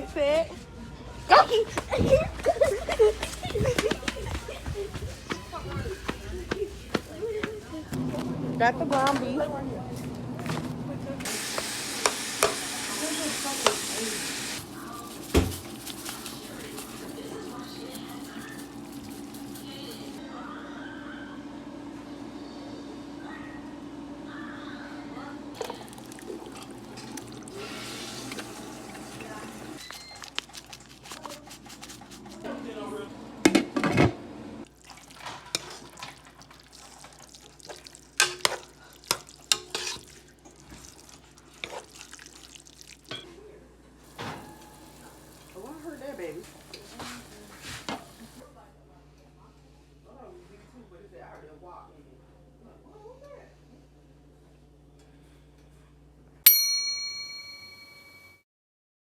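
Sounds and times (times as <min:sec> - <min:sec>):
meat sizzling in a frying pan: 0:11.3 - 0:14.6
sharp ringing clinks: 0:56.5 - 0:58.4.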